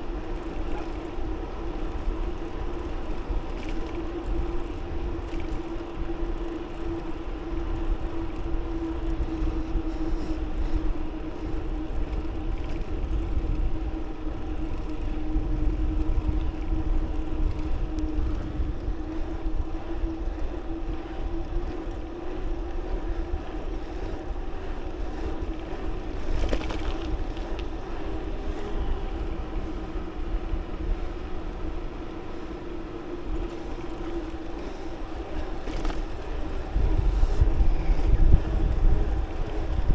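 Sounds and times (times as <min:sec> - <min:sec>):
steady bicycle riding hum: 0:00.0 - 0:39.9
wind rumbling on microphone: 0:00.0 - 0:39.9.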